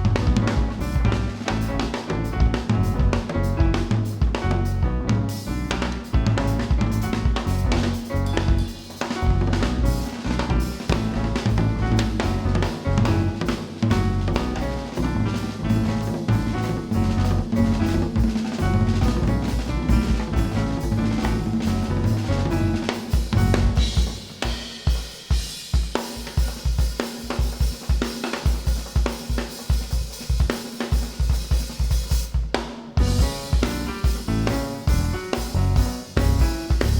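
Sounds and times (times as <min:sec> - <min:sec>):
jazz quartet playing: 0:00.0 - 0:24.2, 0:33.0 - 0:36.9
drum kit rapid strikes: 0:00.0 - 0:36.9.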